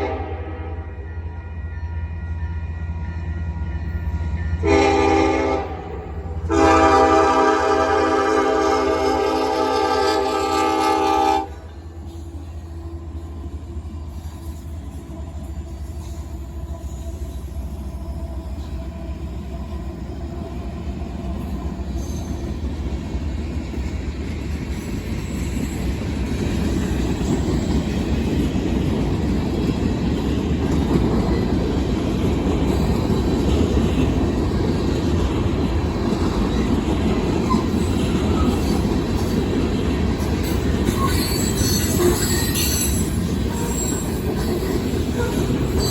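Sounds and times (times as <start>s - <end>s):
train horn blast: 0.0s - 3.2s, 4.6s - 11.8s
freight train rumbling past: 0.0s - 45.9s.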